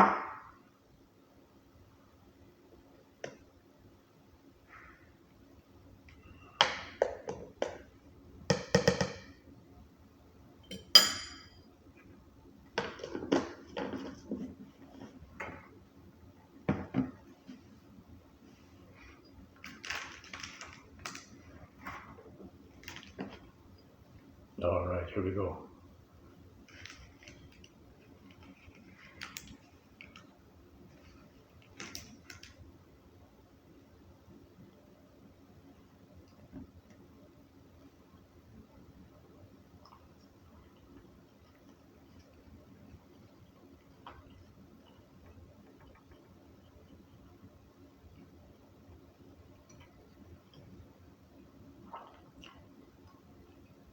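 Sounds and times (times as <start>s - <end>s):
tableware knocking and clinking: 10.7s - 11.6s
bright ringing clink: 10.7s - 11.7s.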